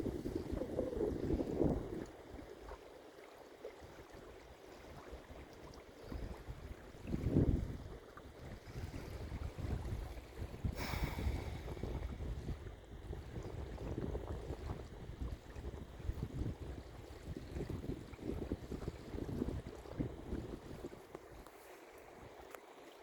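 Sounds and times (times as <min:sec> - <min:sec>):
wind buffeting microphone: 0:00.0 - 0:02.7, 0:06.0 - 0:21.5.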